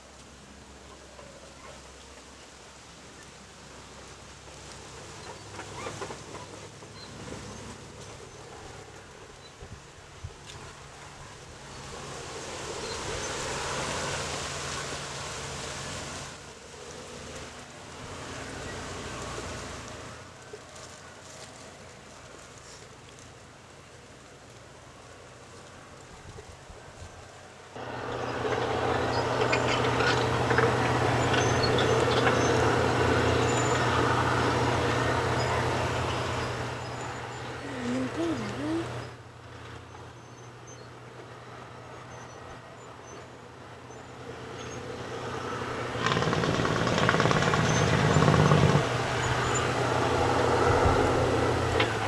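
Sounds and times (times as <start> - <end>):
tractor engine humming: 3.7 - 42.8, 43.5 - 52.0
tractor engine running: 27.8 - 39.8, 45.1 - 52.0.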